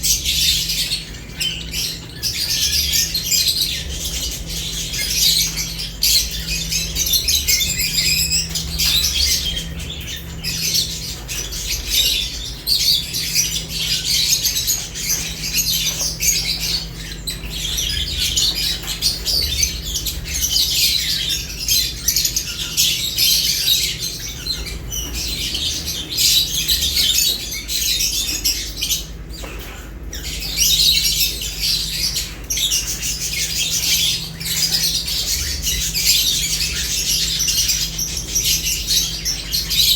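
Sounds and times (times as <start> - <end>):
lovebirds chattering: 0.0 - 39.9
steady low hum: 0.0 - 39.9.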